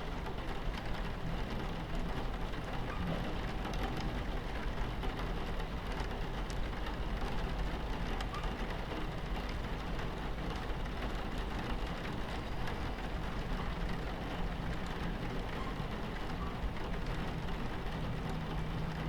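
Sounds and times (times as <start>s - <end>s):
rain pattering on window: 0.0s - 19.0s
train rumbling: 9.3s - 19.0s.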